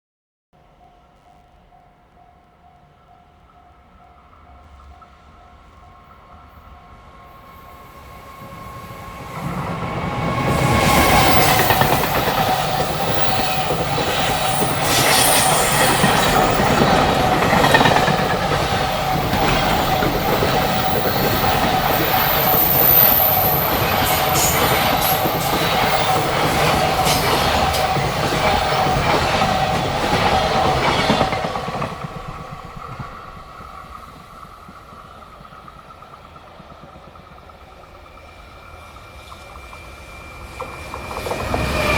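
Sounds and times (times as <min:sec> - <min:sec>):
train hum: 0:00.6 - 0:41.9
freight train wheels clattering: 0:09.4 - 0:38.1.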